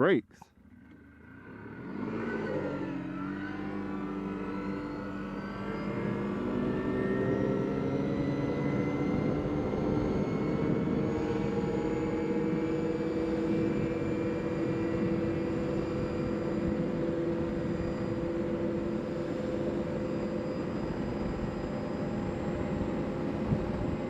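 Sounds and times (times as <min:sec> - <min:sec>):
atv engine accelerating: 0:00.6 - 0:17.4.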